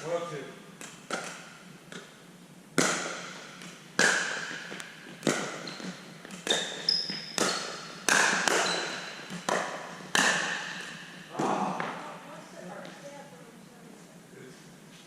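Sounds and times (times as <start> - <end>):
paddles striking plastic ball: 7.4 - 12.0.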